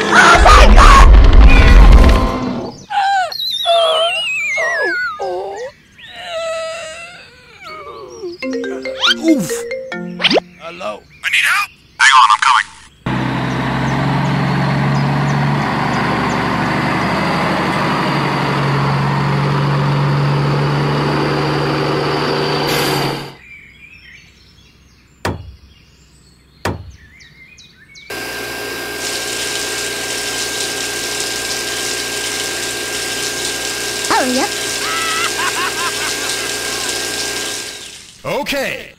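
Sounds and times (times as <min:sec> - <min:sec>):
electric water pump humming: 0:13.1 - 0:23.4, 0:28.1 - 0:38.2
toy truck motor humming: 0:28.1 - 0:38.2.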